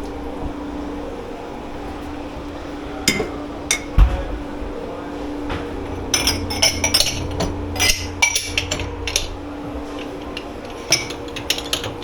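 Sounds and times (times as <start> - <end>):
machine hum: 0.0 - 12.0
dishes and cutlery clattering: 5.5 - 9.3, 10.0 - 12.0.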